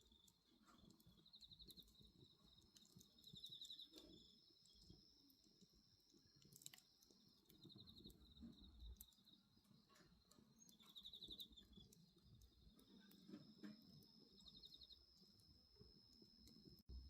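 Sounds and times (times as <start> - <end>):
bonfire crackling: 0.0 - 17.0
crickets chirping: 0.8 - 16.9.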